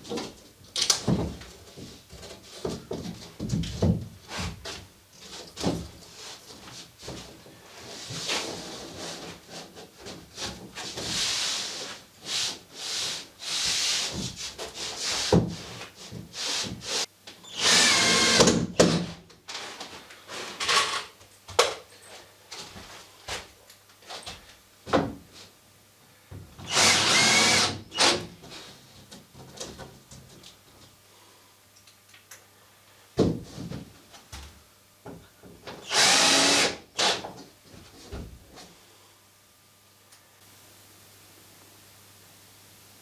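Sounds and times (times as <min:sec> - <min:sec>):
power drill driving screws: 0:17.5 - 0:18.7, 0:26.6 - 0:28.2, 0:35.8 - 0:37.2.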